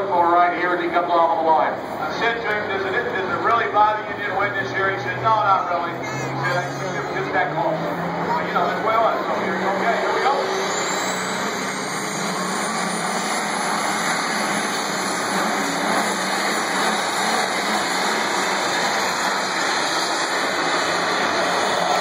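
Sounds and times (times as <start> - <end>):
tractor engine under load: 7.3 - 22.0
high whistle rising in pitch: 10.2 - 13.5.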